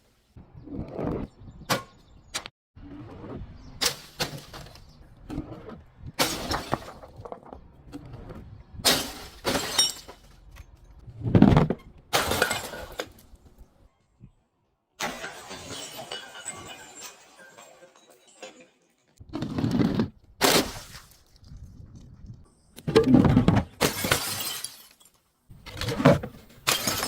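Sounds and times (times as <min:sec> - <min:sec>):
glass bottles shattering: 0:06.2 - 0:07.4, 0:08.9 - 0:10.5, 0:12.2 - 0:13.4, 0:15.0 - 0:19.2, 0:23.8 - 0:25.2, 0:26.6 - 0:27.0
glass crunching and tinkling: 0:09.1 - 0:10.9, 0:15.0 - 0:19.2, 0:23.9 - 0:25.3, 0:26.6 - 0:27.0.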